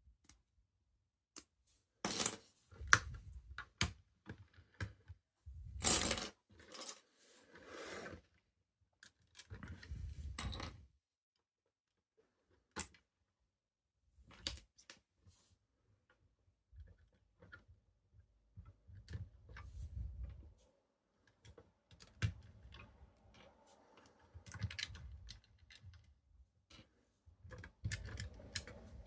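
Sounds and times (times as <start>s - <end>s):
plastic toy bricks clicking and rattling: 27.4s - 29.0s.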